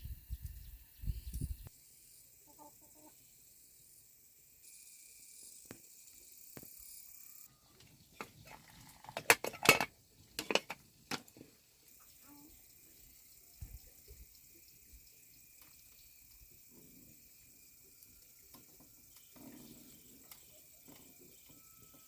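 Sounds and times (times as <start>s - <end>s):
hard objects clattering: 8.2s - 11.3s.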